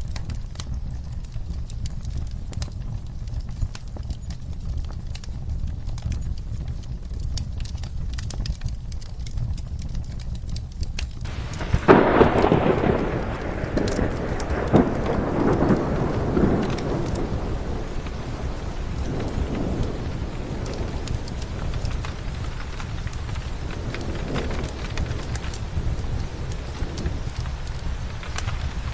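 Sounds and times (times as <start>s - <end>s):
rain: 0.0s - 28.9s
wood fire crackling: 0.0s - 28.9s
thunder rumbling: 11.2s - 28.9s.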